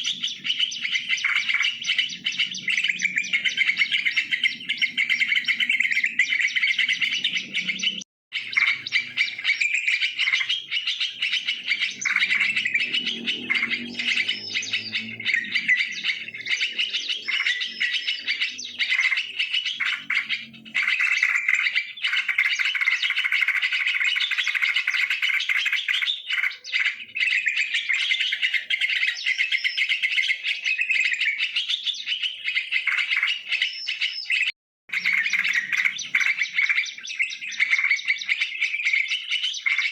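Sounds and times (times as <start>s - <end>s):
bulbuls calling and chattering: 0.0s - 39.9s.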